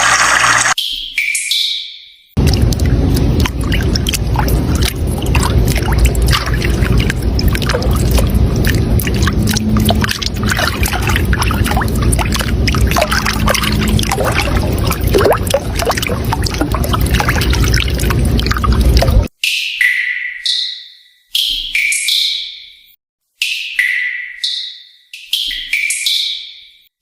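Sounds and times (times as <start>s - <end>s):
running water splashing: 0.0s - 0.8s, 2.4s - 19.3s.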